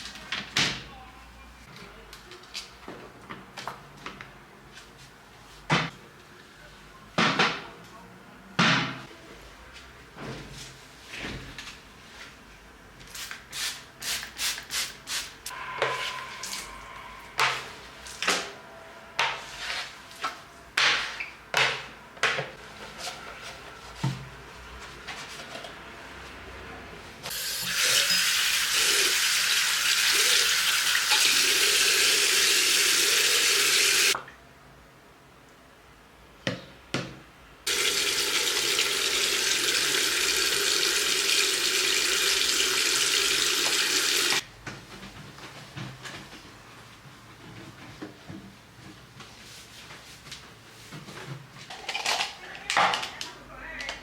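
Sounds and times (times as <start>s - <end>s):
water running hard: 27.3s - 34.2s, 37.7s - 44.4s.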